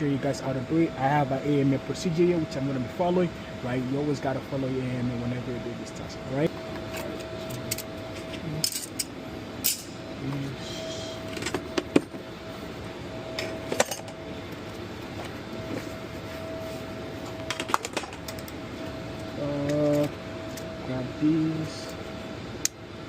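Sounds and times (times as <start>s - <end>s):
background hum: 0.0s - 23.0s
faint steady tone: 10.1s - 17.4s.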